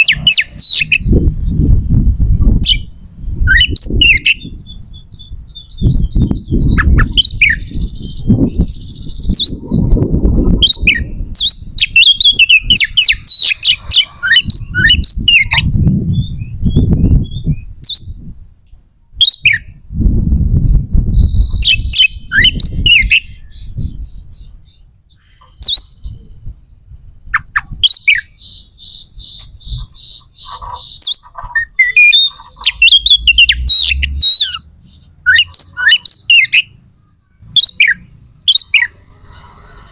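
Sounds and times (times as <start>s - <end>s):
low rumbling noise: 0.0s - 18.6s
bird chirping and squawking: 0.0s - 39.9s.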